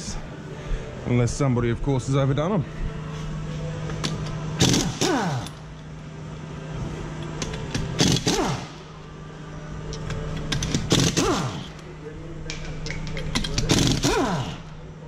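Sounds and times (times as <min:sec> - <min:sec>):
steady low hum: 0:00.0 - 0:15.0
impact wrench hammering: 0:04.0 - 0:05.6, 0:07.4 - 0:08.9, 0:10.0 - 0:11.8, 0:12.6 - 0:14.7.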